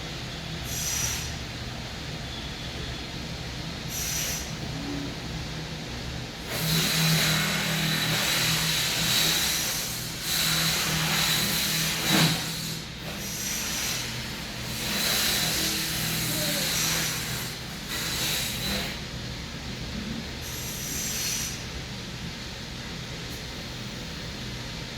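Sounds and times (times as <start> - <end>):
hissing breaths through the nose: 0.6 - 1.4, 3.9 - 4.6, 8.2 - 19.0.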